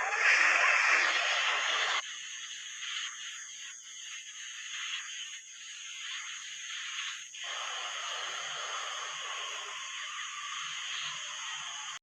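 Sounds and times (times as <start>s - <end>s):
rain: 0.0s - 2.0s, 7.4s - 12.0s.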